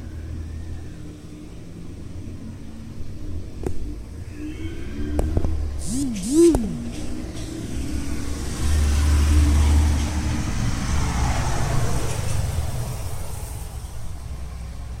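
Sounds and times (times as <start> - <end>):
vehicle engine passing by: 0.0 - 15.0.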